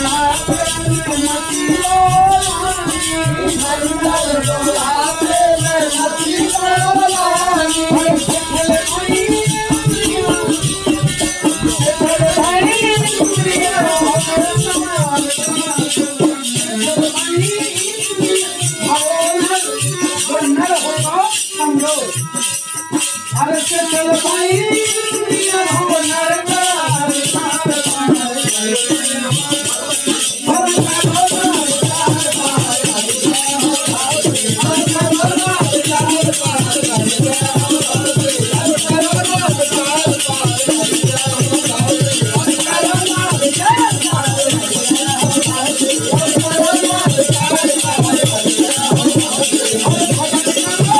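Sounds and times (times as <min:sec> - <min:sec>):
wavering melody line: 0:00.0 - 0:15.4
drum strokes: 0:00.0 - 0:17.0
person singing devotional song: 0:00.0 - 0:50.9
rattling shaker percussion: 0:00.0 - 0:50.9.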